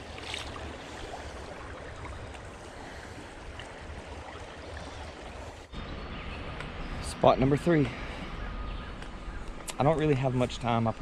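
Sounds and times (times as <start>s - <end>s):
creek water running: 0.0s - 8.3s.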